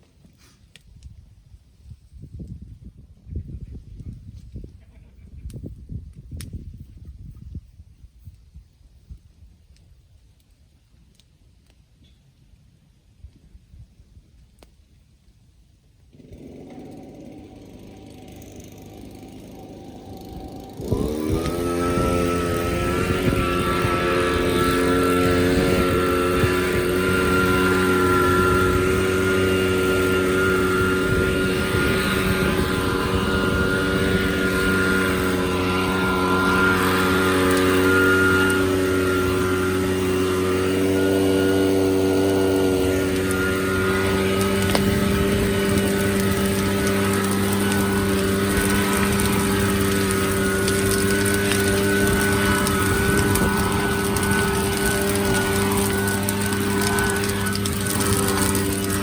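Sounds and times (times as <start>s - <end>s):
small engine running: 16.1s - 59.0s.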